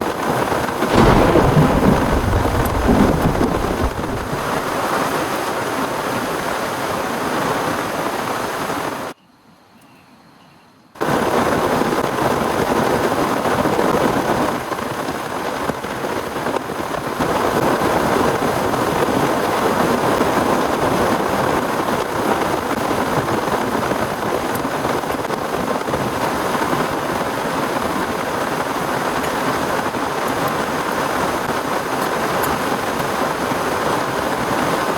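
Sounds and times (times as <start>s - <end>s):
heavy rain: 0.0s - 9.2s, 11.0s - 34.9s
low rumble of thunder: 0.8s - 5.1s.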